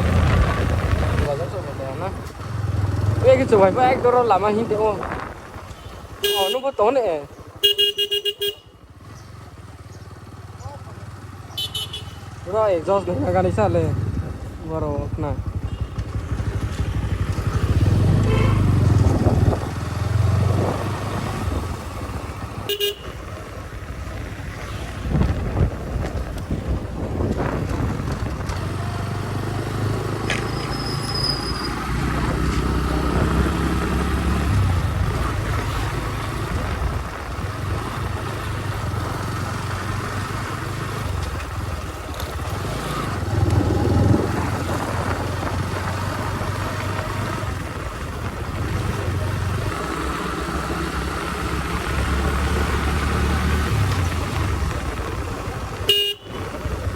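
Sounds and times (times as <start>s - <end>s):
motorcycle engine revving: 0.0s - 6.4s, 8.9s - 56.9s
horn toot: 6.2s - 6.7s, 7.6s - 8.7s, 18.1s - 18.9s, 22.7s - 23.2s, 55.9s - 56.5s.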